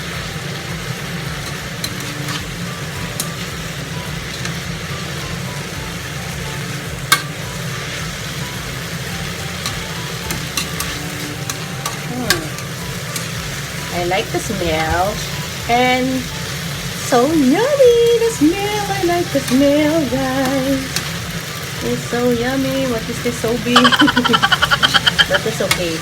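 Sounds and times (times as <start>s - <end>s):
food sizzling in a frying pan: 0.0s - 26.0s
utensil clicking against pan: 9.6s - 13.4s, 20.4s - 21.2s.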